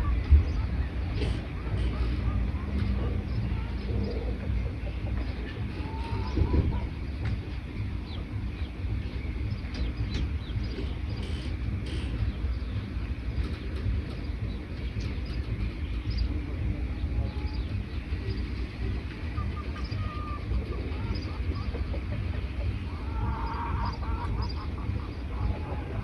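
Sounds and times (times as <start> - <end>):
birds chirping: 0.0 - 26.0
steady low rumble: 0.0 - 26.0
low bird call series: 8.0 - 26.0.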